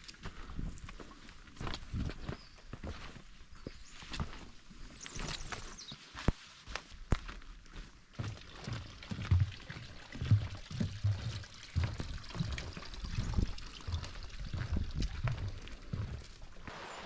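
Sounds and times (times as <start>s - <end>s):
footsteps on forest trail: 0.0s - 17.0s
trickle of running water: 8.2s - 16.7s.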